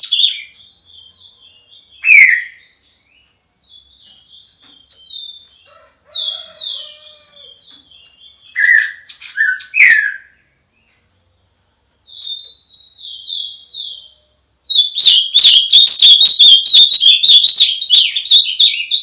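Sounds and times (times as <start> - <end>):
songbirds chirping and whistling: 0.0 - 19.0
low warbling bird call: 12.6 - 19.0.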